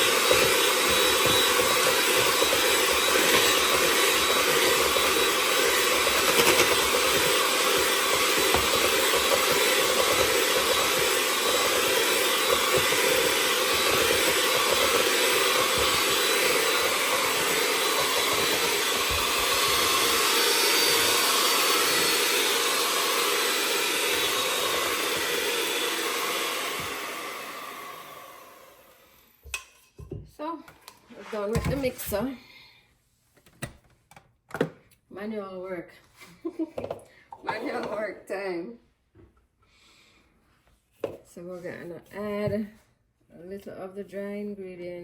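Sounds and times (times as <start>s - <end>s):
electric mixer running: 0.0s - 29.6s.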